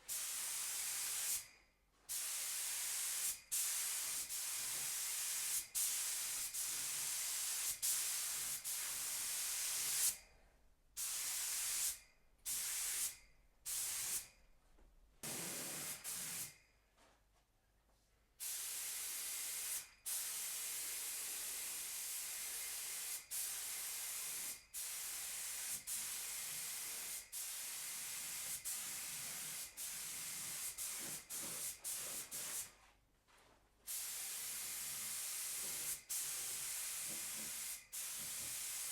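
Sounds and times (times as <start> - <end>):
paint spray gun hissing: 0.1 - 1.4, 2.1 - 10.2, 11.0 - 14.3, 15.2 - 16.5, 18.4 - 32.7, 33.9 - 38.9.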